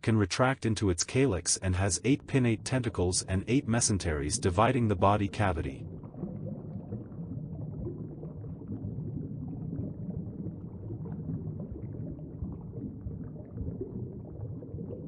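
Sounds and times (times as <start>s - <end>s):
faint irregular crackle: 5.3s - 15.0s.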